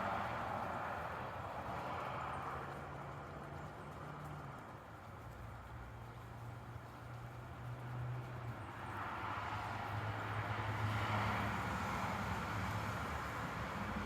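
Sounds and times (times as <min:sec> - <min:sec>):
passing motor vehicle: 0:07.7 - 0:14.0.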